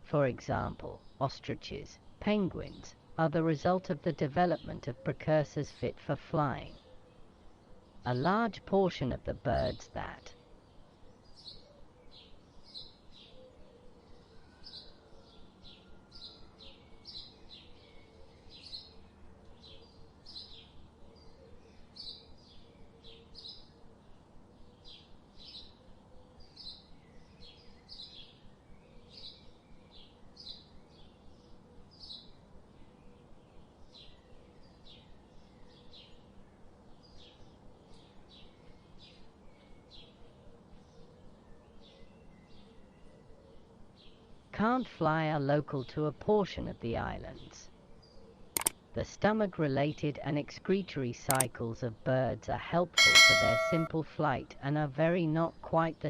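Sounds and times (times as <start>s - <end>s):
small birds chirping: 0.0s - 51.6s.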